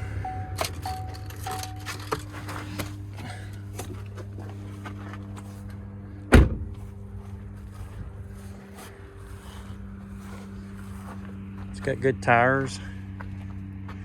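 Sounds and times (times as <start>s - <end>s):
pickup truck engine idling: 0.0s - 11.7s
truck door slamming: 6.3s - 6.8s.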